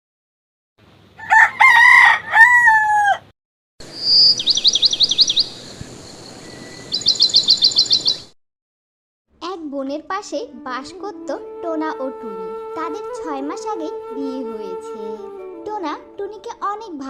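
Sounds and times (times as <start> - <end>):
rooster crowing: 1.2 - 3.3
small bird chirping rapidly: 3.9 - 8.4.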